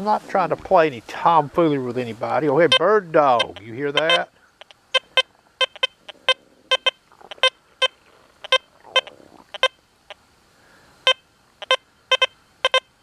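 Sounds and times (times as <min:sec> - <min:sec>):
metal detector short beeps: 0:02.7 - 0:09.8, 0:11.0 - 0:12.9.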